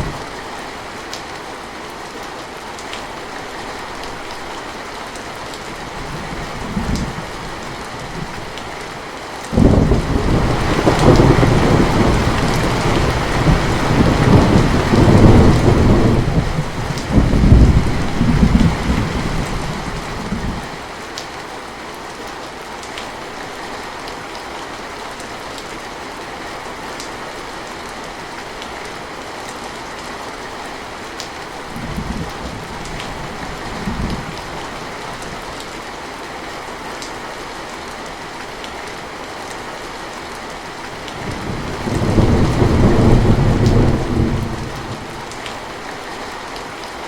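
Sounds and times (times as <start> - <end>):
steady rain: 0.0 - 47.0
thunder rumbling: 9.6 - 20.7, 41.2 - 45.5.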